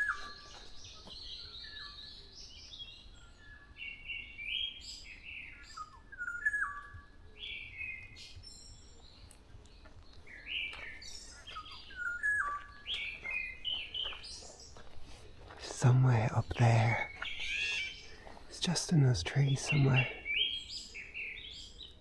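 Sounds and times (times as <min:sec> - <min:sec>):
small birds chirping: 0:00.0 - 0:22.0
oriole whistled song: 0:11.5 - 0:14.2.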